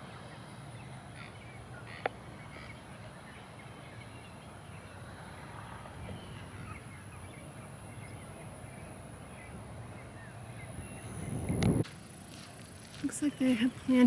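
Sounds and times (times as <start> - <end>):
faint bird calls: 0.2 - 5.0.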